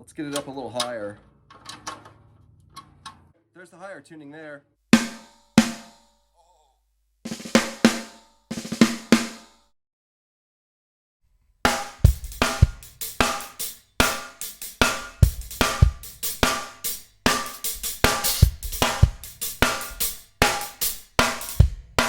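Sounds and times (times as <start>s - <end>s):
snare drum strokes: 5.0s - 6.0s, 7.3s - 9.5s, 11.7s - 22.0s
drum kit beat: 5.0s - 6.1s, 7.3s - 9.6s, 11.7s - 22.0s.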